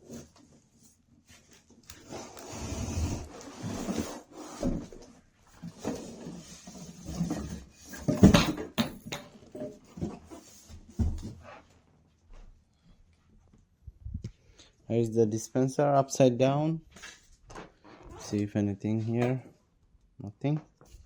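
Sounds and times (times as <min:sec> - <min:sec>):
cardboard rubbing and scraping: 0:02.0 - 0:08.3
knocks and thumps: 0:08.0 - 0:10.2.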